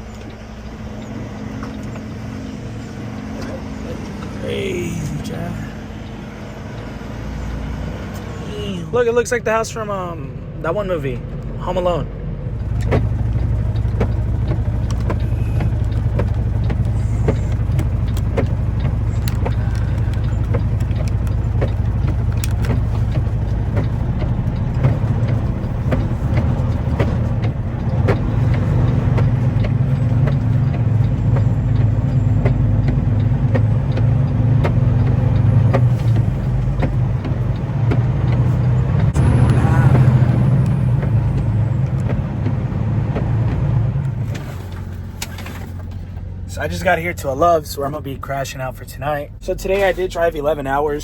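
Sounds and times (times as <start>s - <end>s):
truck engine and road noise: 0.0s - 51.0s
small clicks and rattles: 12.6s - 39.2s.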